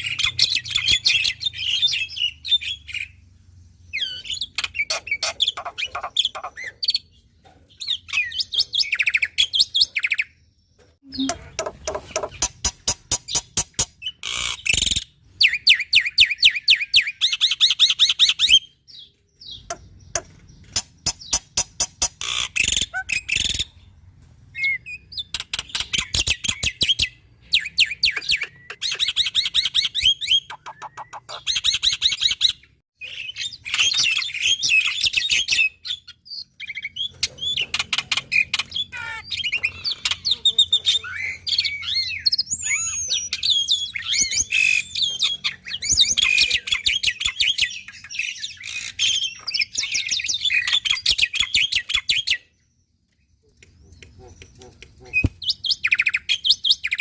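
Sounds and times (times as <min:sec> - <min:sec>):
starling singing: 0:00.0 - 0:03.2, 0:03.9 - 0:07.2, 0:11.0 - 0:12.6, 0:24.6 - 0:52.5
sharp clicking bird notes: 0:19.6 - 0:23.6, 0:25.2 - 0:27.1, 0:53.1 - 0:56.1.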